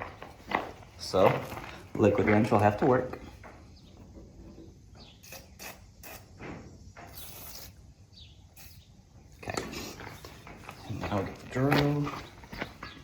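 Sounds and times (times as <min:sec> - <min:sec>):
handling clicks and rustles: 0:00.0 - 0:04.1, 0:09.5 - 0:13.0.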